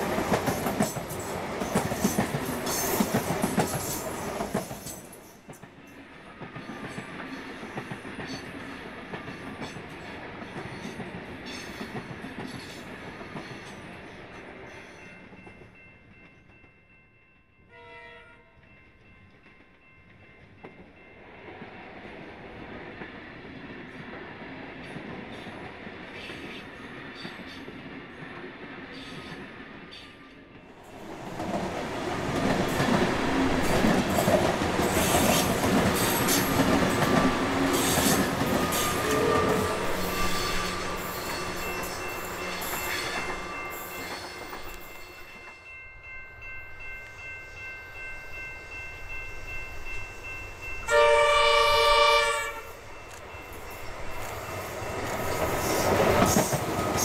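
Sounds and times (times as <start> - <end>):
train wheels rumbling on rail: 0.0 - 16.8, 19.0 - 45.7, 46.8 - 57.0
train horn: 17.7 - 18.6, 37.7 - 44.1, 50.8 - 52.8
electric train whine: 28.9 - 57.0.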